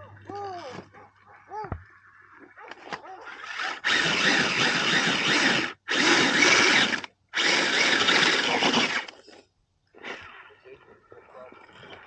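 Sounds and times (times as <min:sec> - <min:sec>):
electric motor whirring: 0:03.3 - 0:09.2.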